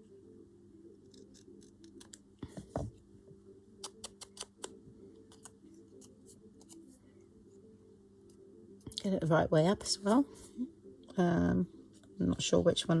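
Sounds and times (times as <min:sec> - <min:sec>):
scissors snipping paper: 0:01.0 - 0:02.2, 0:03.8 - 0:06.8.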